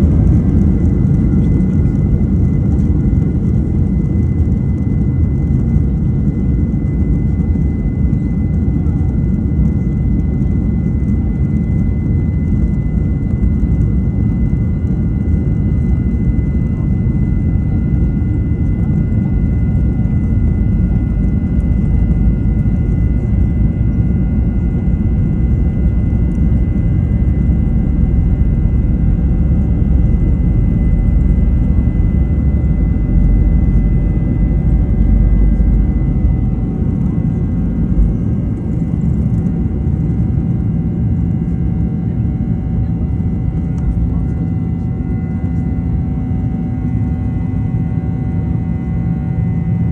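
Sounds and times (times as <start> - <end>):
jet engines rumbling and whining: 0.0 - 49.9.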